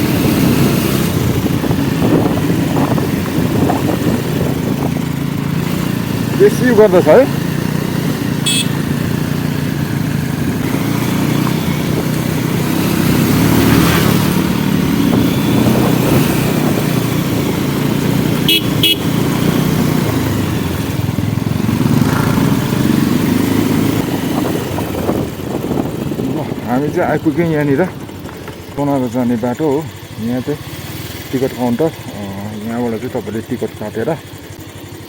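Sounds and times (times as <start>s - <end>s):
motorcycle engine running: 0.0s - 35.0s
vehicle horn tooting: 8.4s - 8.9s, 18.4s - 19.2s.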